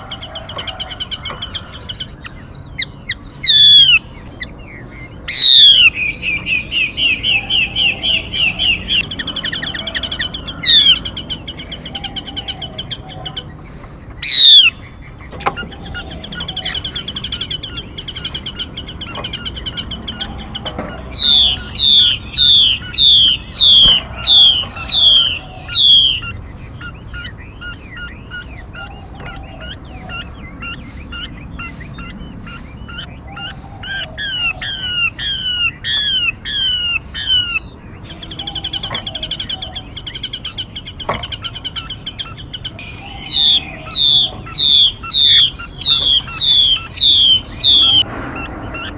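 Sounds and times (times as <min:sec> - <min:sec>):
bird down-slurred calls: 0:00.0 - 0:48.9
bird trilling: 0:00.0 - 0:48.9
soft quick bird chirps: 0:21.1 - 0:34.1, 0:41.0 - 0:48.8.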